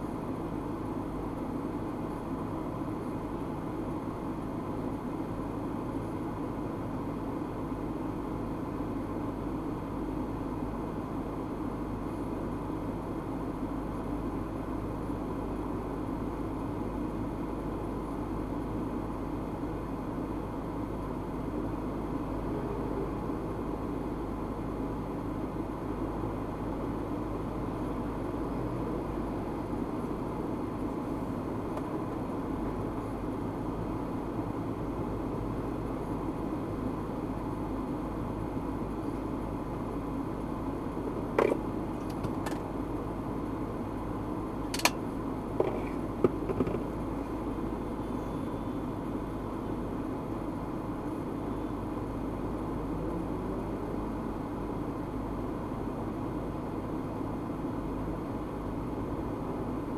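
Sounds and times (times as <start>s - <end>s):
car road and engine noise: 0.0s - 59.9s
sharp clicks and knocks: 41.4s - 42.7s, 44.7s - 45.0s.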